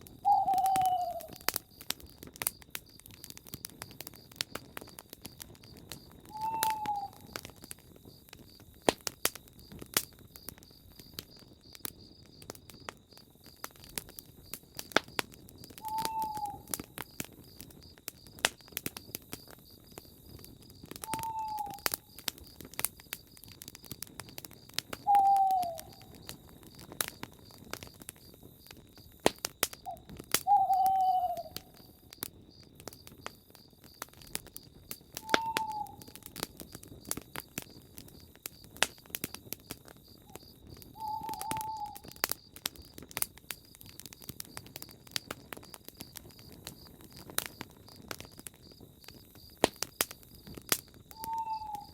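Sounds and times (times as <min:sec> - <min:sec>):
campfire crackling and popping: 0:00.0 - 0:51.9
bird hooting: 0:00.2 - 0:01.4, 0:06.3 - 0:07.4, 0:15.8 - 0:16.7, 0:21.1 - 0:21.8, 0:25.1 - 0:26.0, 0:29.9 - 0:31.8, 0:35.2 - 0:36.2, 0:41.0 - 0:42.0, 0:51.2 - 0:51.9.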